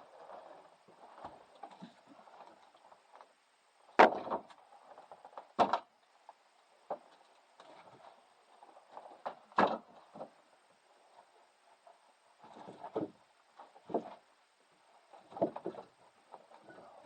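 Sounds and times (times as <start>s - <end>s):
firewood knocking: 13.8s - 14.2s.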